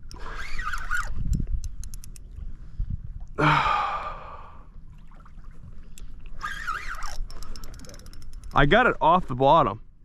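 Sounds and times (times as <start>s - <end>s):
man sighing heavily: 3.4s - 4.7s.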